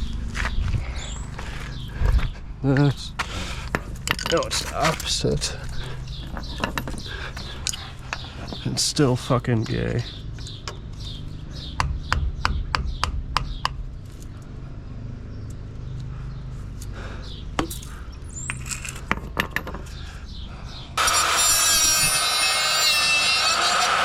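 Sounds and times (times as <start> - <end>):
metal clicks and knocks: 3.6 - 8.7, 18.5 - 20.0.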